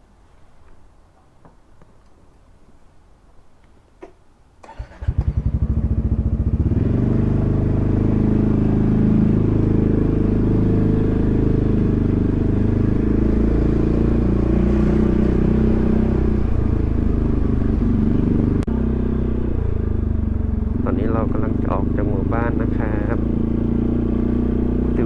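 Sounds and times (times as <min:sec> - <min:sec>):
scooter engine starting: 0:04.6 - 0:09.2.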